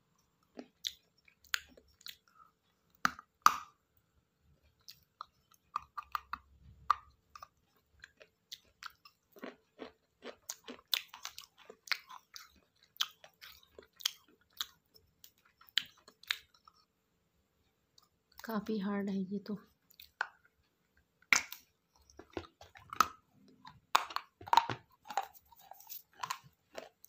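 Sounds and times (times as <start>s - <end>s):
crunching clay pot pieces: 21.3s - 27.0s.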